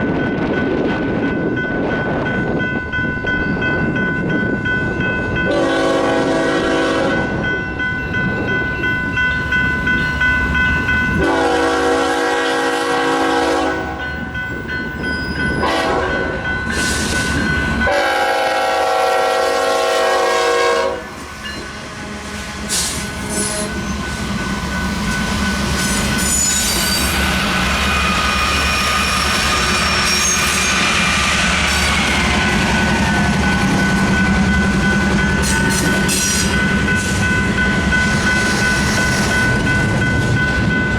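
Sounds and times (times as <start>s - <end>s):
crossing bell ringing: 0.0s - 40.9s
diesel locomotive horn blasts: 5.5s - 7.5s, 11.2s - 14.0s, 15.5s - 16.4s, 17.8s - 23.9s
train wheels clattering on rails: 22.6s - 40.9s
faint wheel squeal: 26.2s - 31.1s.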